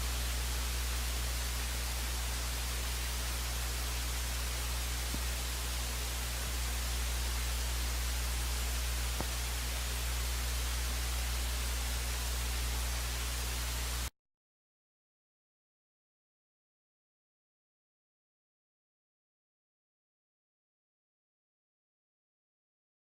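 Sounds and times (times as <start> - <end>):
low electrical hum: 0.0 - 14.1
static hiss: 0.0 - 14.1.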